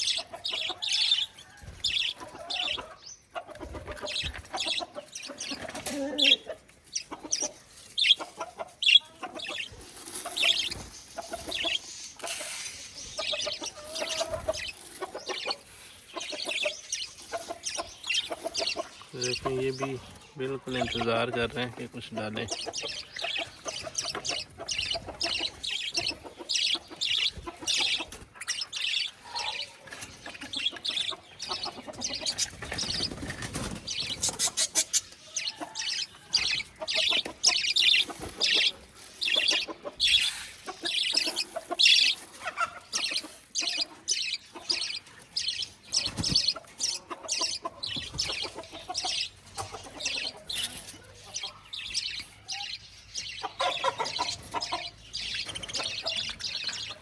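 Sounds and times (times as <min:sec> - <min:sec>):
parrots chirping: 0:00.0 - 0:57.0.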